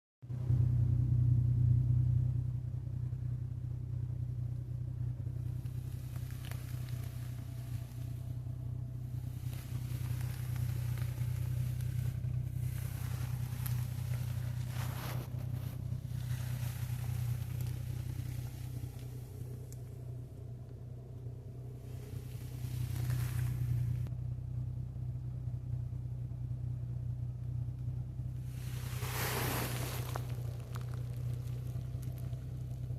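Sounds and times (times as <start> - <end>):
car engine idling: 0.2 - 32.9
water spray hissing: 28.4 - 31.4.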